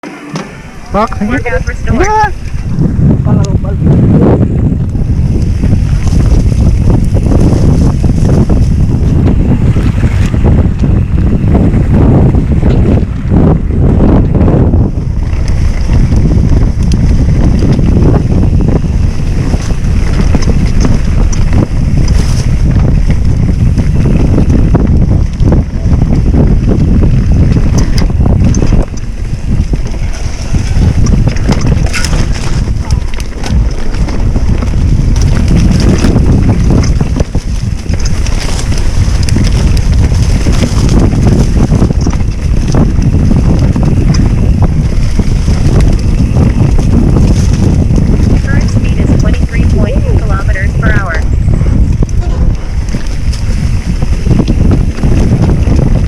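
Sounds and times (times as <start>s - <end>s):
wind buffeting microphone: 0.0s - 56.0s
small clicks and rattles: 30.1s - 44.3s.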